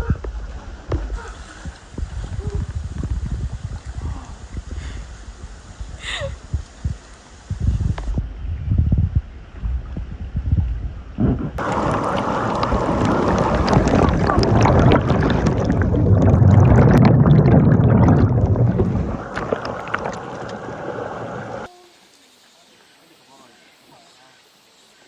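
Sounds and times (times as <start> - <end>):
stream water splashing: 11.6 - 21.7.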